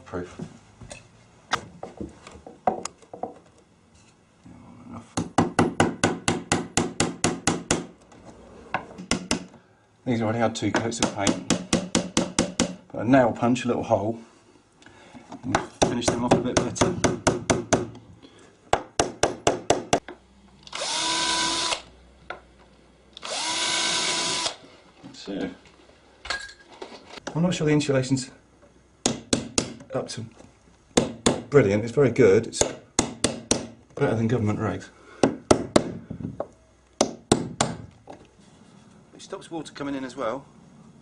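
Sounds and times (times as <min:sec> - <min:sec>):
power drill whining: 0:20.6 - 0:21.9, 0:23.2 - 0:24.6.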